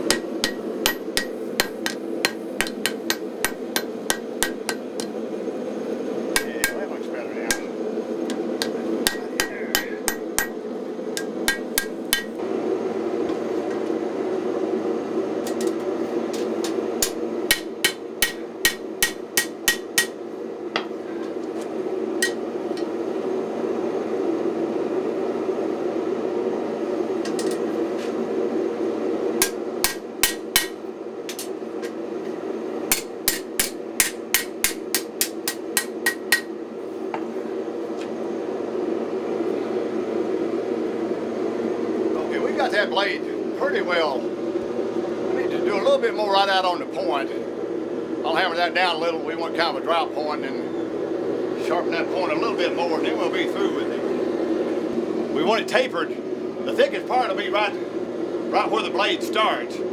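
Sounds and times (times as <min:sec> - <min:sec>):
hammer striking metal on anvil: 0:00.0 - 0:05.2, 0:06.3 - 0:06.8, 0:08.3 - 0:10.6, 0:11.2 - 0:12.4, 0:17.0 - 0:20.2, 0:29.4 - 0:31.5, 0:32.9 - 0:36.5
gas forge roaring: 0:00.0 - 0:59.9.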